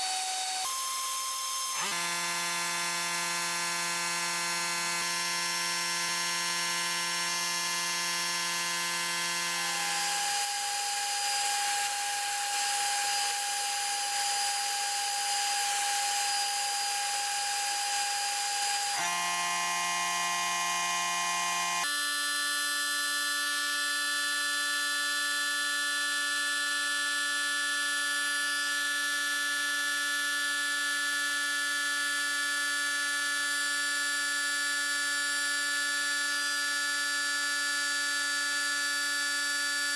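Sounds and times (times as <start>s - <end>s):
electric power tool whining: 0.0s - 22.0s.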